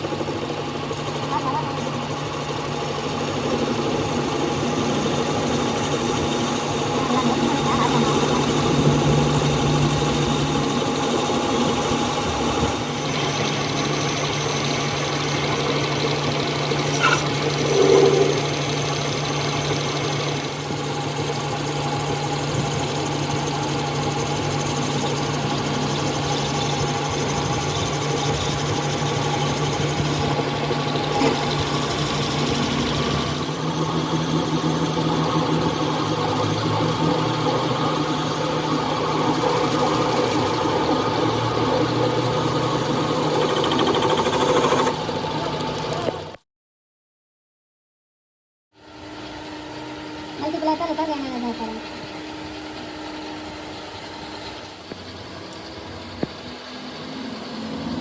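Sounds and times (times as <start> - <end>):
machinery humming: 0.0 - 46.4.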